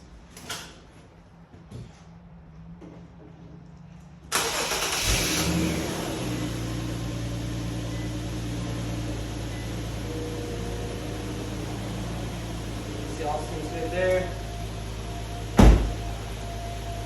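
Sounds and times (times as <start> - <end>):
car engine starting and idling: 4.2 - 17.0.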